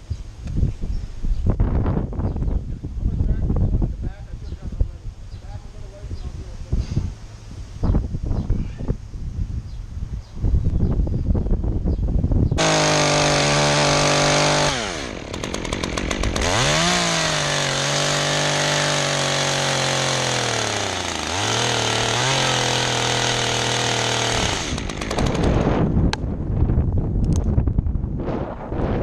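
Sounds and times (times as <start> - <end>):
wind buffeting microphone: 0.1 - 17.0, 22.0 - 29.0
chainsaw running: 12.6 - 26.2
sharp cracks: 12.6 - 26.3.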